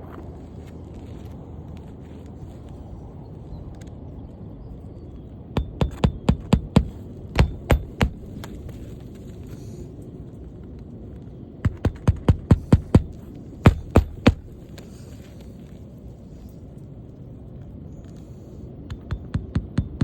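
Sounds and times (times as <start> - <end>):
steady low rumble: 0.0 - 20.0
hammer tapping nails into shingle: 5.6 - 8.6, 11.6 - 14.9, 18.9 - 20.0.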